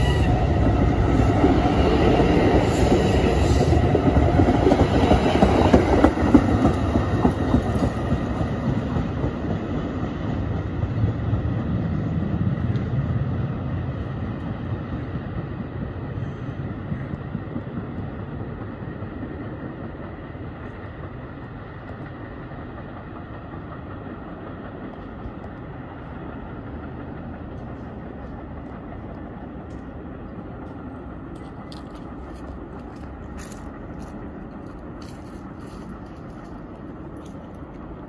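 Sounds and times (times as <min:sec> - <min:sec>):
train rumbling: 0:00.0 - 0:38.0.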